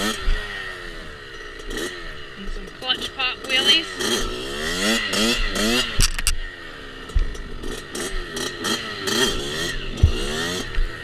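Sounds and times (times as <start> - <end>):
small off-road engine revving: 0.0 - 11.0
sharp knocks: 10.0 - 10.6.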